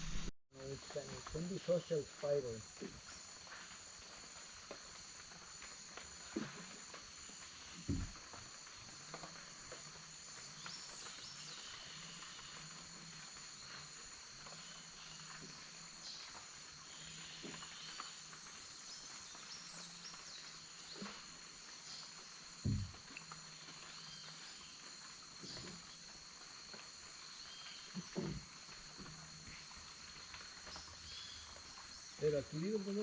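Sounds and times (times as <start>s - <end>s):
insects buzzing and chirring: 0.0s - 33.0s
soft knocks: 22.6s - 23.0s.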